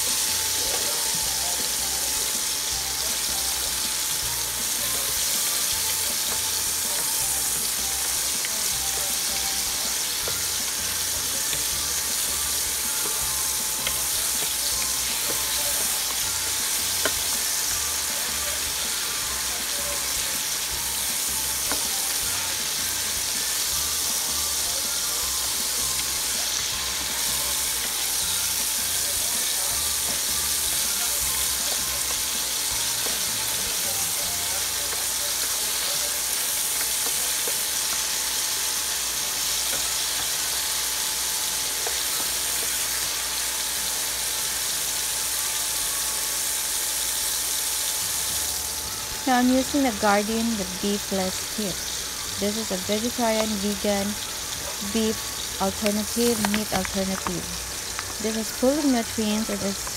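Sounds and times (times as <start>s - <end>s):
vegetables sizzling in oil: 0.0s - 59.9s
spatula scraping and tapping pan: 13.8s - 17.5s, 21.5s - 22.2s.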